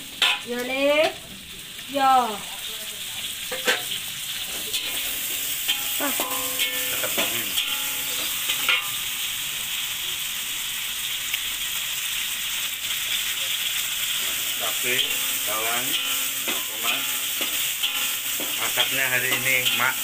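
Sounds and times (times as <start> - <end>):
vegetables sizzling in oil: 0.0 - 20.0
metal spatula knocking on wok: 5.7 - 8.9.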